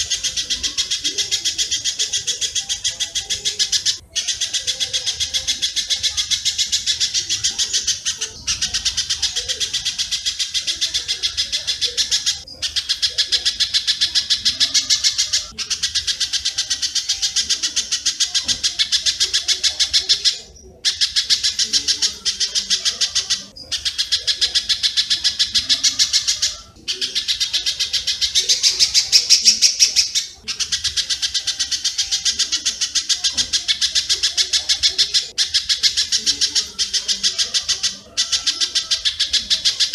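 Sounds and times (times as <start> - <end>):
birds chirping rapidly: 0.0 - 39.9.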